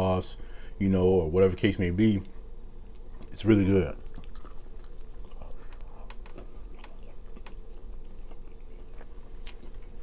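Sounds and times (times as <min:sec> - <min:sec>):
person chewing food: 0:04.0 - 0:10.0.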